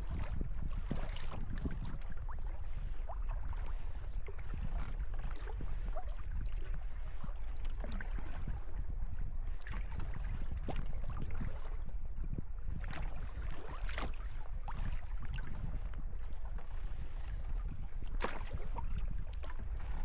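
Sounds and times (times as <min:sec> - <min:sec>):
wind rumble on microphone: 0:00.0 - 0:20.0
paddle splashing water: 0:09.6 - 0:11.7, 0:12.7 - 0:20.0.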